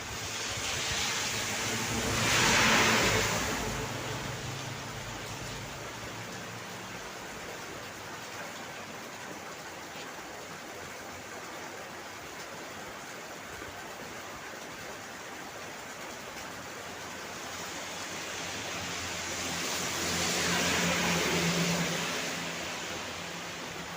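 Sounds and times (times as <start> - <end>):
steady rain hiss: 0.0 - 23.9.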